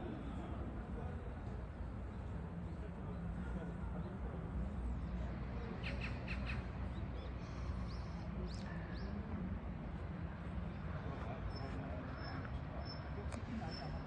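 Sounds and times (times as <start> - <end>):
low city hum: 0.0 - 14.0.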